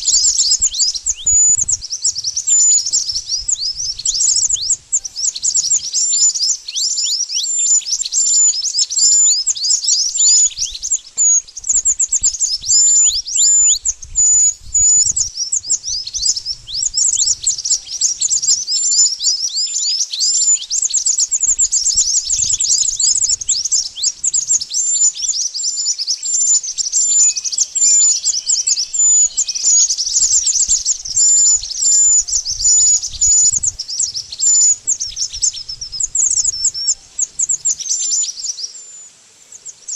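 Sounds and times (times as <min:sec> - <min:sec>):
birds chirping rapidly: 0:00.0 - 0:39.9.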